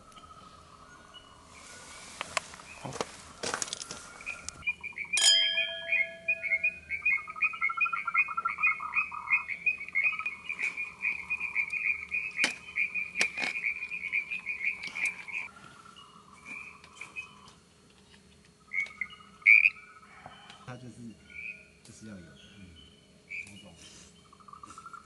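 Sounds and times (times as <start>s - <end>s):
low fast pulsing call: 4.1s - 15.5s
animal high chirps: 4.6s - 15.5s
sharp metallic clink: 5.2s - 6.6s.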